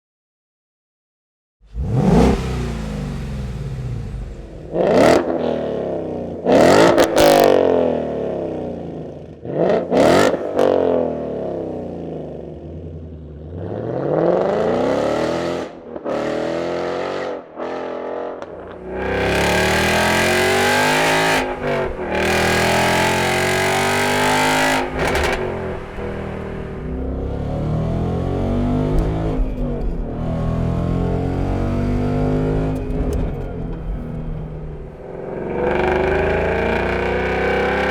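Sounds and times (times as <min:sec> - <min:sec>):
car engine revving: 0:01.7 - 0:08.6, 0:18.7 - 0:37.9.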